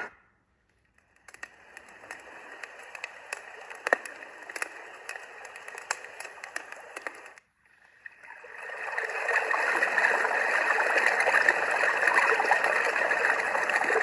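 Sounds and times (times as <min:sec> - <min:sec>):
sound machine hiss with crackles: 0:01.0 - 0:14.0.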